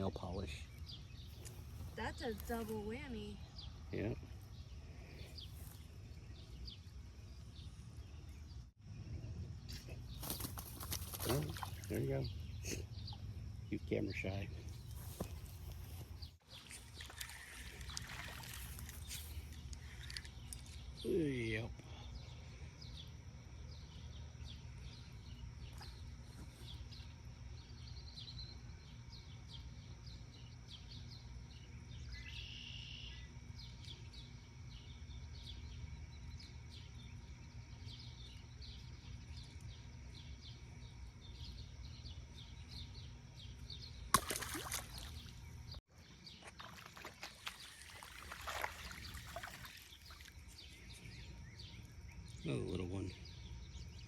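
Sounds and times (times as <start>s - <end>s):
water sloshing and splashing: 10.5s - 12.2s, 14.9s - 20.9s, 44.1s - 45.7s, 46.3s - 50.7s
bird chirps: 23.7s - 54.0s.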